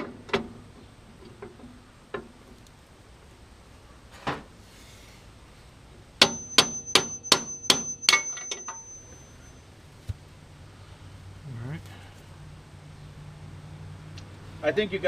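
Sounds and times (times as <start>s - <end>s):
hammer striking steel: 6.2s - 9.1s
metal ringing: 6.2s - 9.7s.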